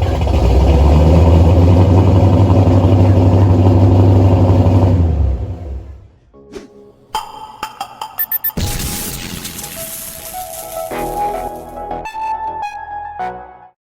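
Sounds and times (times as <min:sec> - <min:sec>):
vee eight engine exhaust roar: 0:00.0 - 0:06.2.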